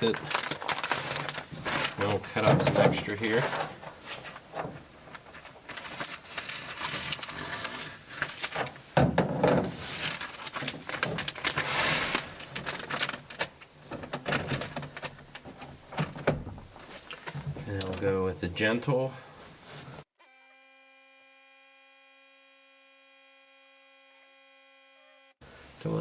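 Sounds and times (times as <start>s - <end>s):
plastic bag crinkling: 0.0s - 18.1s.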